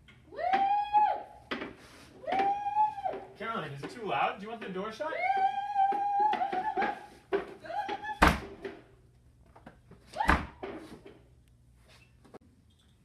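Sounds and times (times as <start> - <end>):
door banging against frame: 6.4 - 8.8.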